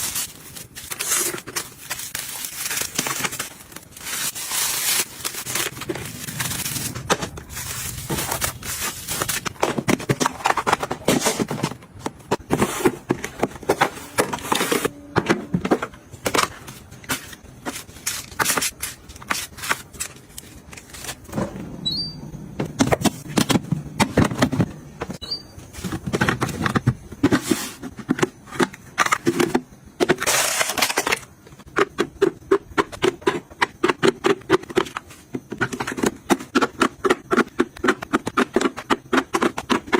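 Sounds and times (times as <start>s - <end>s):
household items clicking and rustling: 0.0s - 21.4s.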